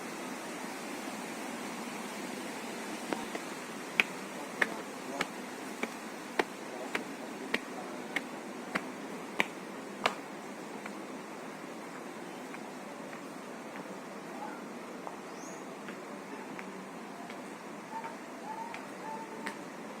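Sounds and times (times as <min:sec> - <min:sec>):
footsteps on a hard path: 0:03.2 - 0:10.2.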